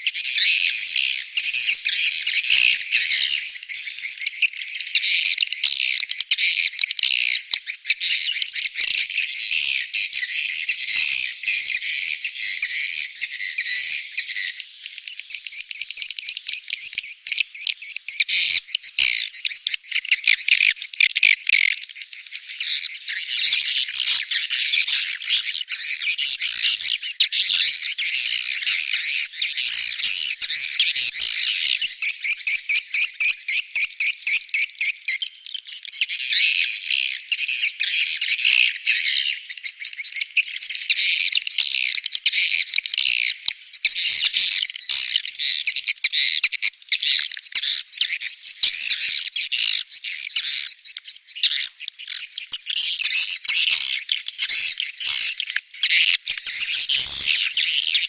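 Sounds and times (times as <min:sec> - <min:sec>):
fast pulsing chirps: 0:56.3 - 0:58.0.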